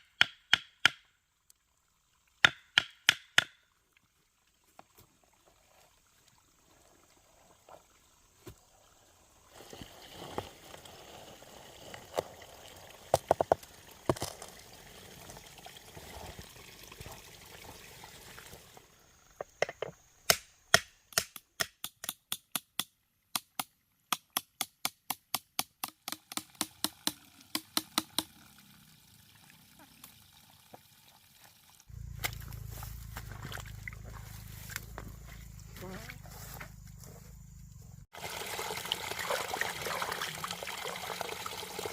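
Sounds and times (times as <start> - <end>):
water pouring and trickling: 1.2 - 2.4, 3.6 - 19.2, 26.1 - 34.8, 38.1 - 41.9.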